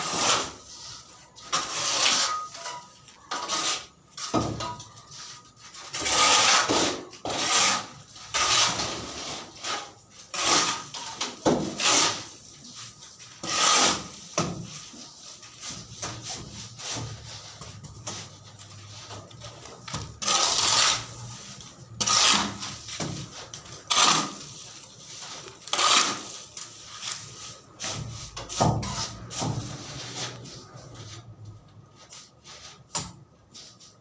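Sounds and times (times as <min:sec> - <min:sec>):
hand tool scraping wood: 0:05.2 - 0:12.8, 0:13.4 - 0:17.5, 0:18.9 - 0:27.2.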